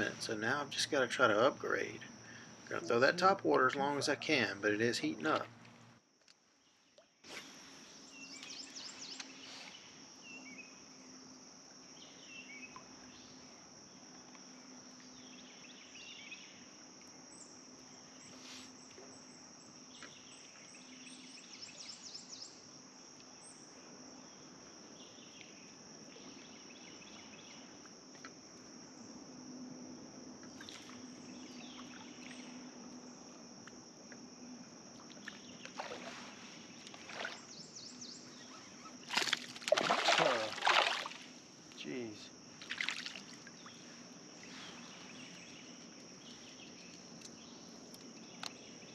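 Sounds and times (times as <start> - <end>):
high insect drone: 0.0 - 48.9
birds chirping: 37.0 - 39.2.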